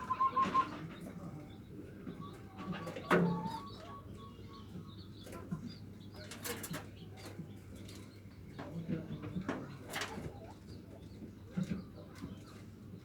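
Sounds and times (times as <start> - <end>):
dove cooing: 0.0 - 0.8, 2.8 - 4.0.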